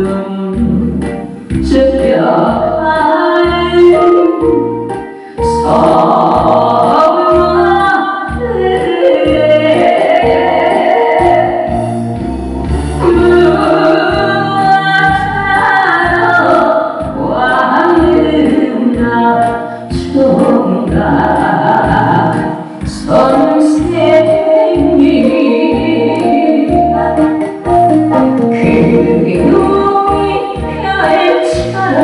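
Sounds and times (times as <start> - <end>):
person singing: 0.0 - 11.8, 13.0 - 32.0
backing track with thumping beat: 10.2 - 32.0.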